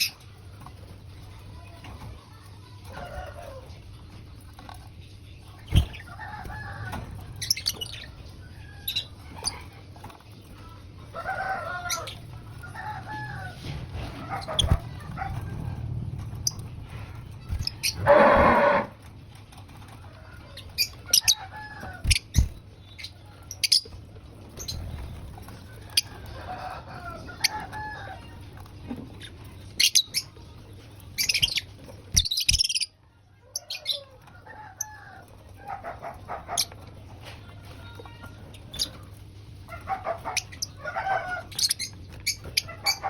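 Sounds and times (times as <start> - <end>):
birds calling: 5.5 - 16.8, 17.4 - 19.2, 20.4 - 30.4, 31.0 - 37.1, 38.4 - 43.0.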